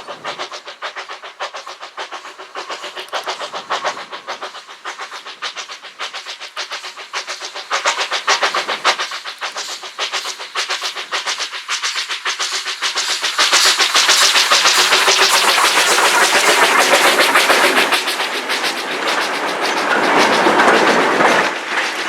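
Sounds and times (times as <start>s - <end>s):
train clattering past: 0.0s - 22.0s.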